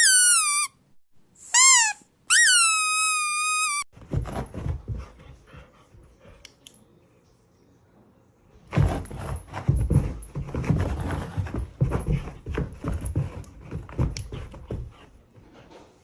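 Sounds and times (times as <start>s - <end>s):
squeaky toy squeaking: 0.0s - 0.8s, 1.4s - 3.9s.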